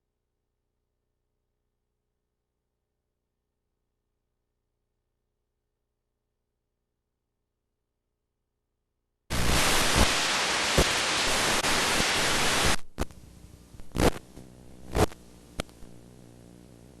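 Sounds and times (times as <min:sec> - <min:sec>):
loud static hiss: 0:09.3 - 0:17.0.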